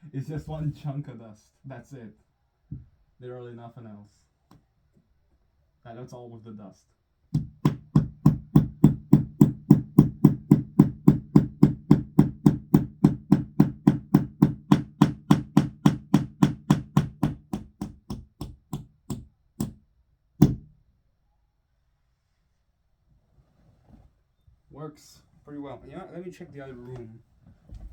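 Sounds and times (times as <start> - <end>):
hammer driving a nail: 7.3 - 19.8, 20.4 - 20.8.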